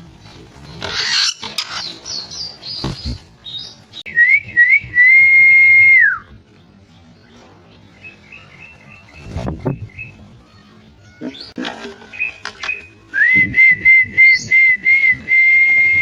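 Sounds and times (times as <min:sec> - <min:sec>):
birds chirping: 0:00.2 - 0:04.3, 0:06.6 - 0:13.1.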